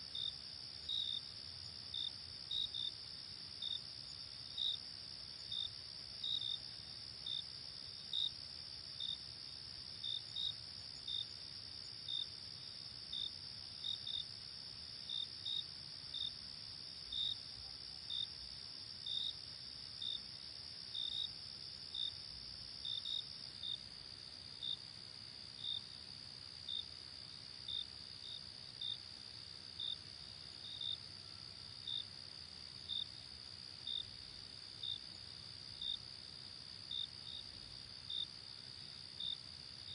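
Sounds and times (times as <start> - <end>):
cricket chirps: 0.0 - 39.9.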